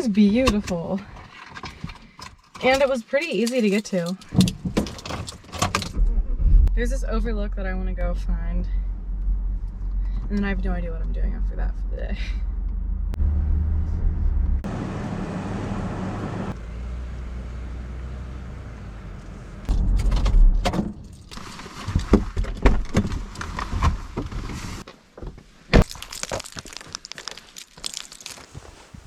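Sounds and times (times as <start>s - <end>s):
car road noise rumble: 5.8s - 21.0s.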